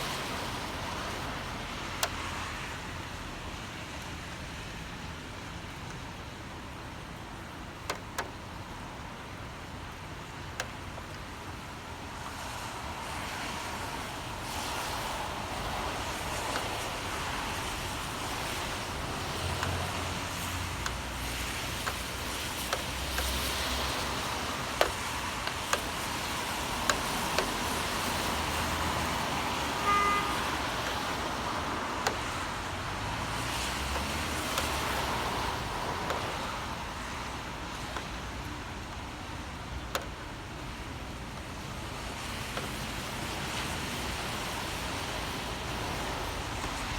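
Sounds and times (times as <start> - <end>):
cars passing on wet street: 0.0 - 46.9
steady rain: 0.0 - 46.9
sharp ticks: 17.6 - 31.2
short tone: 29.8 - 30.4.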